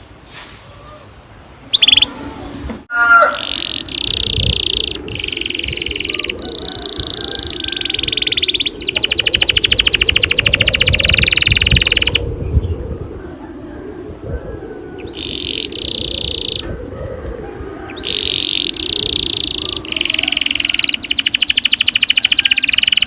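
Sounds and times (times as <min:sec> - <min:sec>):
canary singing trills: 0:01.6 - 0:02.4, 0:03.1 - 0:12.8, 0:15.0 - 0:16.7, 0:17.8 - 0:23.0.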